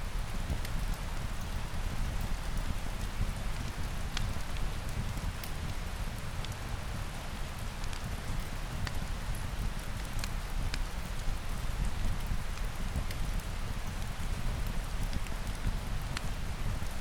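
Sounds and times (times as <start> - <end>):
fire crackling and popping: 0.2 - 17.0.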